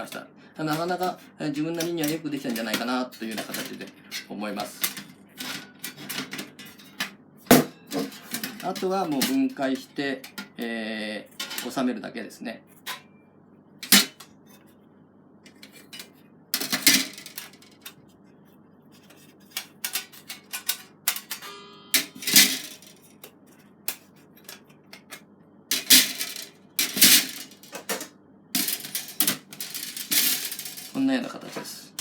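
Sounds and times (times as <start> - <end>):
metal ringing: 21.4 - 22.8.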